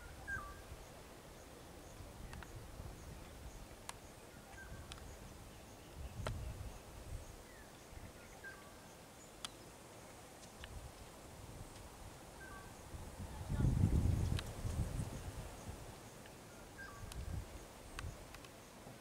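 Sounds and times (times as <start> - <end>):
bird calling: 0.0 - 0.7, 16.5 - 17.1.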